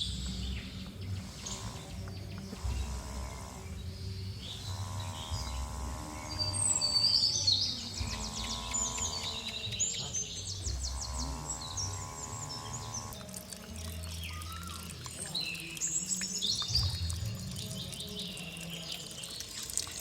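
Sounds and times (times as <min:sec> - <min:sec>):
low steady rumble: 0:00.0 - 0:13.2
flat droning tone: 0:00.0 - 0:14.0
small birds chirping: 0:00.0 - 0:20.0.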